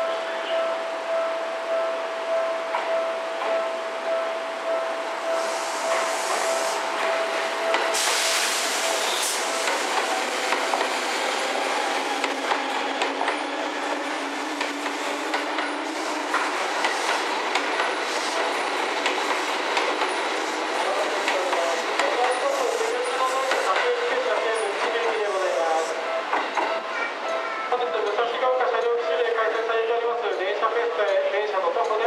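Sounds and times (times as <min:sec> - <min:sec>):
train rolling noise: 0:02.6 - 0:32.0
train wheels clicking over rail joints: 0:12.1 - 0:20.4.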